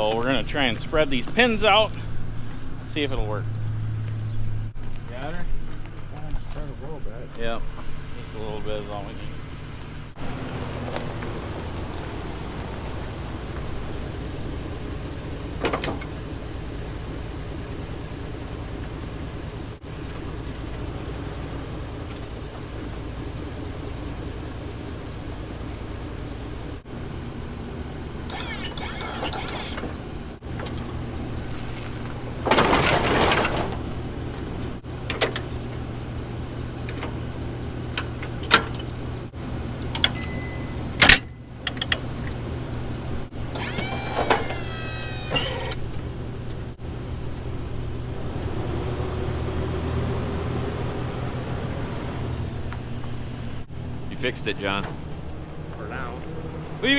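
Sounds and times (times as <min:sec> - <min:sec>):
truck engine idling: 0:00.0 - 0:56.9
sharp metallic clicks: 0:28.2 - 0:29.9.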